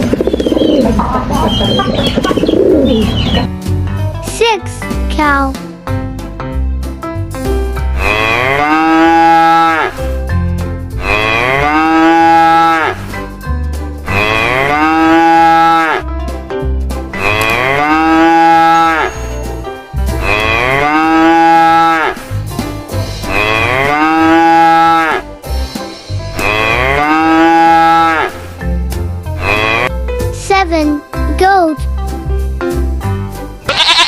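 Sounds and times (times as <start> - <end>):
cow mooing: 8.0 - 10.0, 11.0 - 13.0, 14.1 - 16.0, 17.2 - 19.2, 20.2 - 22.2, 23.3 - 25.2, 26.4 - 28.3, 29.4 - 29.9, 33.7 - 34.0.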